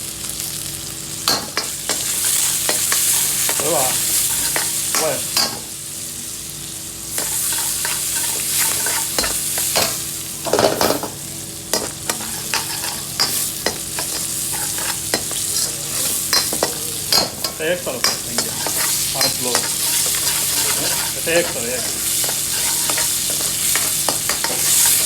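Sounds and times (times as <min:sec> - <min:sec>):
food sizzling in a pan: 0:00.0 - 0:25.0
metal utensil scraping a pan: 0:07.2 - 0:11.0, 0:11.8 - 0:25.0.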